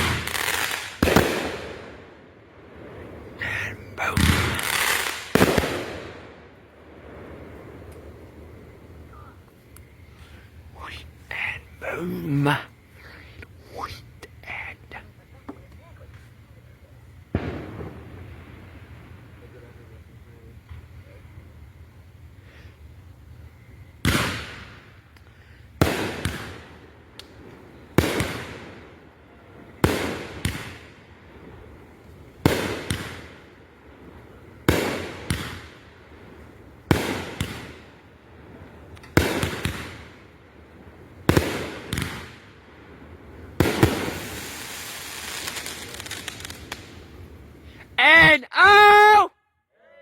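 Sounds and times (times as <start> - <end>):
fireworks sharp reports: 0.0 - 21.4, 23.8 - 49.3
fireworks crackling hiss: 0.0 - 49.1.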